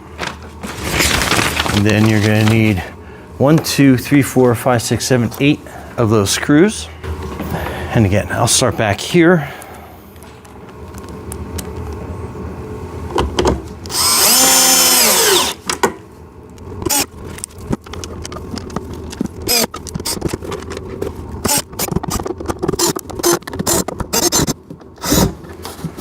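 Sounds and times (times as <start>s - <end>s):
cordless drill motor whine: 13.9s - 15.6s, 16.8s - 17.1s, 19.4s - 20.2s, 22.7s - 25.2s
clicks and knocks of handled parts: 17.3s - 24.9s.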